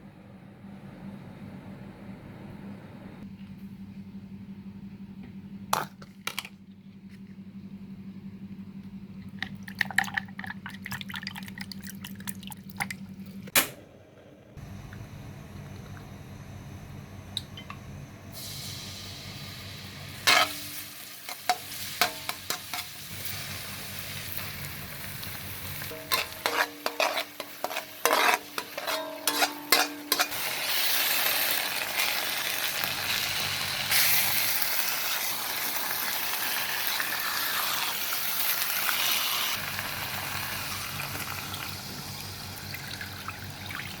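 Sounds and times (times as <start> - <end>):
steady low hum: 0.0 - 30.8
food sizzling in a pan: 18.4 - 43.1.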